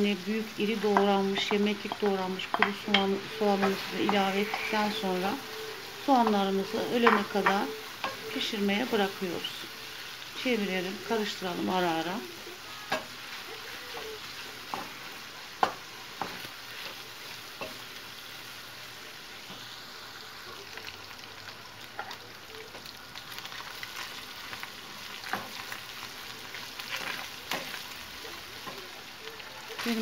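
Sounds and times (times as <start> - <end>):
meat sizzling in a frying pan: 0.0 - 30.0
wooden spoon scraping a pan: 0.6 - 9.1.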